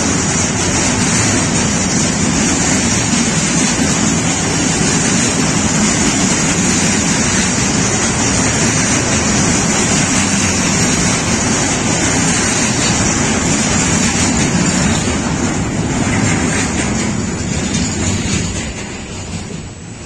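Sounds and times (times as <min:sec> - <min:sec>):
steel wheels on rails: 0:00.0 - 0:20.0.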